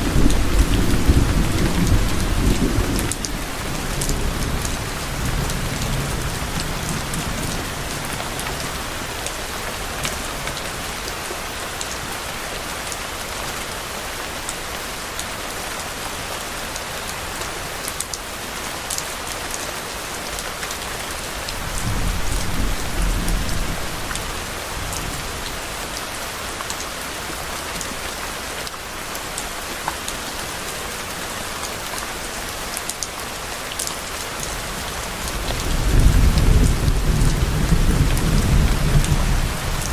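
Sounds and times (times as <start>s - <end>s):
distant thunder rumbling: 0.0s - 7.0s, 21.6s - 25.2s
steady rain: 0.0s - 39.9s.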